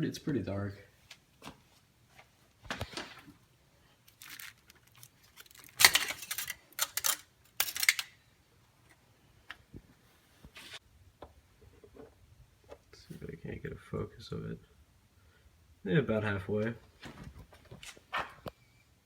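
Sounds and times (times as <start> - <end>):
rustling handling noises: 0.9 - 8.1
scraping clatters: 4.2 - 8.1.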